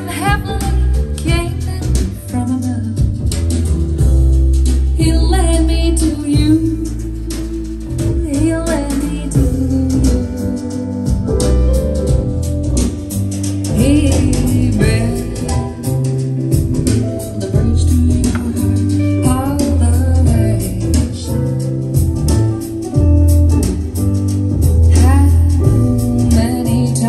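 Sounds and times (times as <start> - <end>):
deep bass: 0.0 - 27.0
guitar: 0.0 - 27.0
person singing: 16.8 - 21.8.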